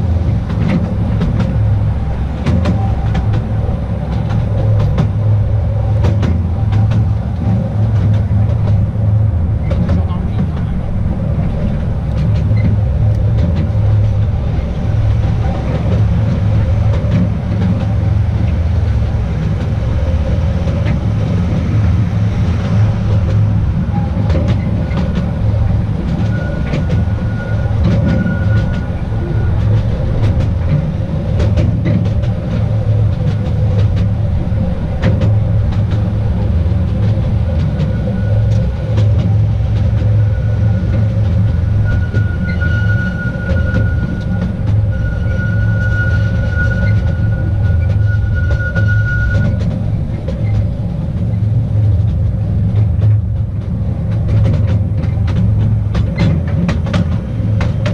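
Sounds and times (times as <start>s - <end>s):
train rumbling on track: 0.0s - 57.9s
faint wheel squeal: 23.8s - 31.0s, 37.7s - 50.8s.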